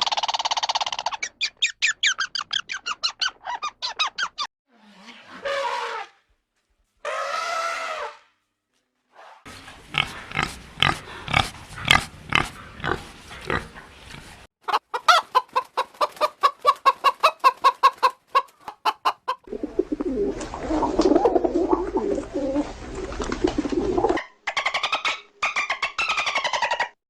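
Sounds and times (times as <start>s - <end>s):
hen clucking: 9.9s - 27.0s.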